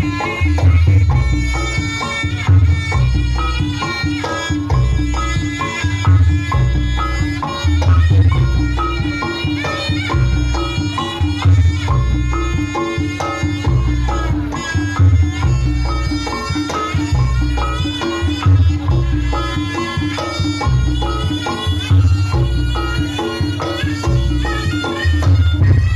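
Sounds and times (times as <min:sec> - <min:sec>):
gongs and chimes beat: 0:00.0 - 0:25.9
hand drums: 0:00.0 - 0:25.9
reedy shawm melody: 0:00.0 - 0:25.9.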